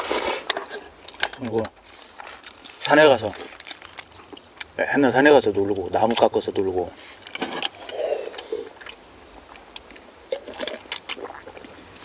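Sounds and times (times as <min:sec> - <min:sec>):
chewing with light clicks: 0:00.5 - 0:04.8, 0:07.2 - 0:11.2.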